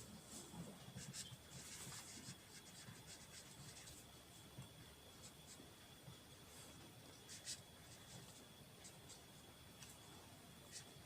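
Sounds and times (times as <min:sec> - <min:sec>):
pen scratching on paper: 0:00.9 - 0:04.0.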